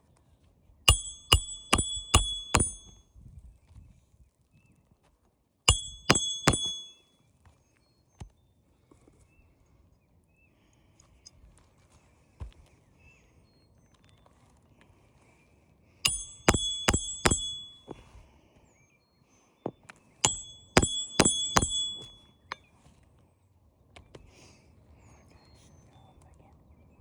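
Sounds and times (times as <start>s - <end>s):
hammer striking nails: 0.9s - 3.0s, 5.7s - 7.0s, 16.1s - 18.0s, 20.3s - 22.2s.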